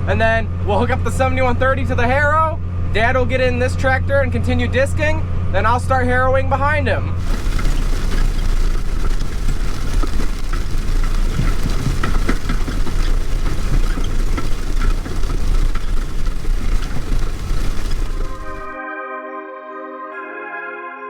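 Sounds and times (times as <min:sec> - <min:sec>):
tractor diesel engine running: 0:07.0 - 0:18.8
small rattles and clanks: 0:07.2 - 0:18.8.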